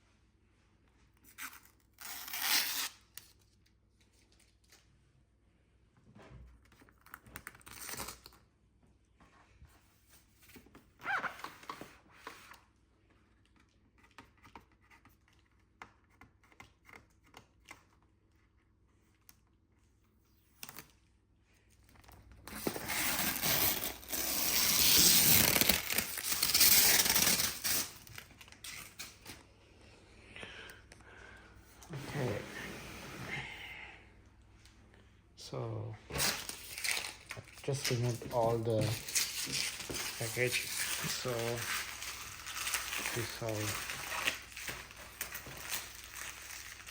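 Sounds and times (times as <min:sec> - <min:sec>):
plastic tearing: 0:01.3 - 0:03.5, 0:22.0 - 0:29.4, 0:36.1 - 0:46.9
plastic crinkling and rustling: 0:36.1 - 0:46.9.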